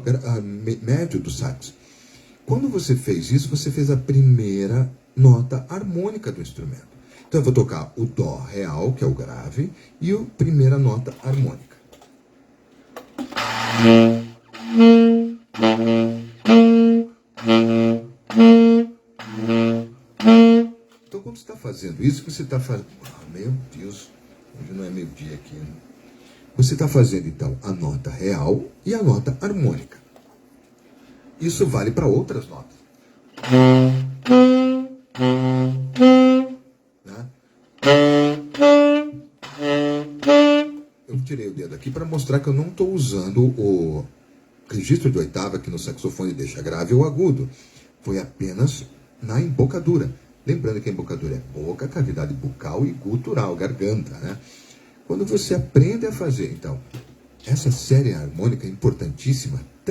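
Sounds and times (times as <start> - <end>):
saxophone alternating two notes: 13.3 - 21.0, 33.4 - 36.6, 37.8 - 40.9.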